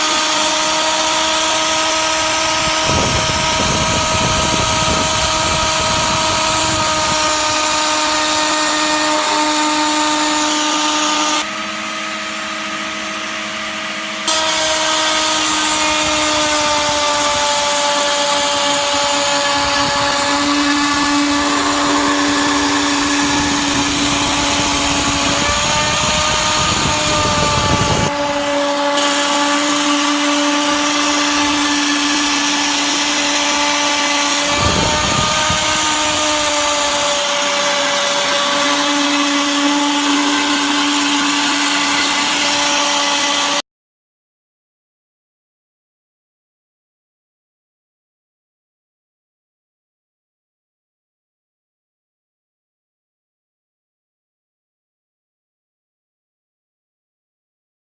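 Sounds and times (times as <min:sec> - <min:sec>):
bit cutting material: 0:00.0 - 0:43.6
grinder spindle whine: 0:00.0 - 0:43.6.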